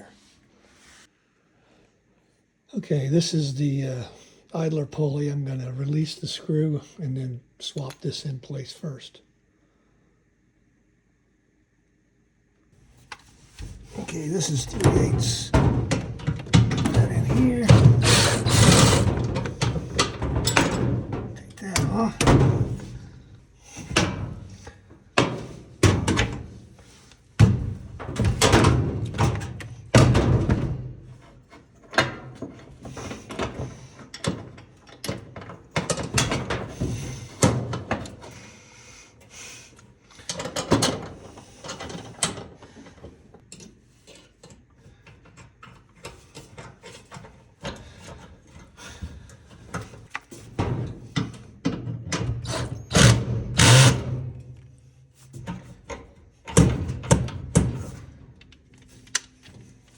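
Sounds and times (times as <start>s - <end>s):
hand tools and metal parts clattering: 13.6s - 38.3s.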